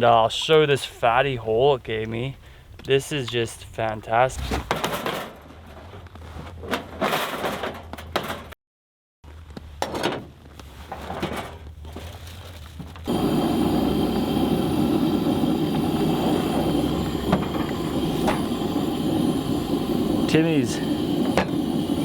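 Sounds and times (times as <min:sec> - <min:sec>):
handling rustles: 0:09.3 - 0:13.1
mechanical hum with whine: 0:13.0 - 0:22.0.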